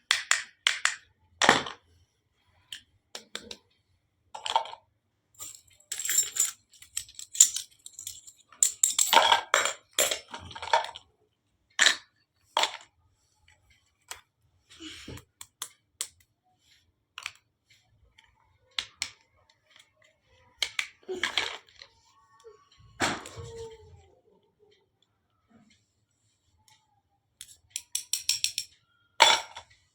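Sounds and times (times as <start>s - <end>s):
small metal pieces clinking: 5.4s - 10.4s.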